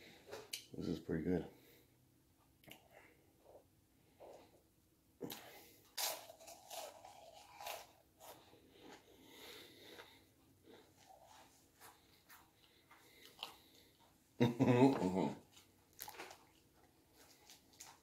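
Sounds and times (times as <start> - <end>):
crunchy chewing: 5.2 - 14.1, 15.5 - 18.0.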